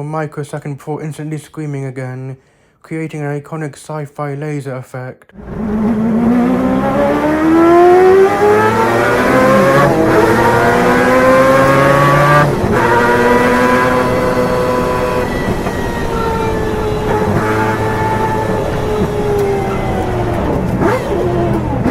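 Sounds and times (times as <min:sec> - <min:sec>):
rotary engine shrieking: 0:05.4 - 0:21.9.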